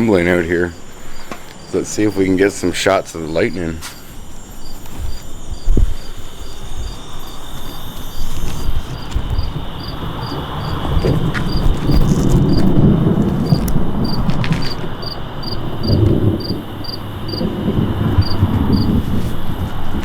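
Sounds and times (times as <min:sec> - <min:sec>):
crickets chirping: 0:00.0 - 0:20.0
thunder rumbling: 0:00.0 - 0:20.0.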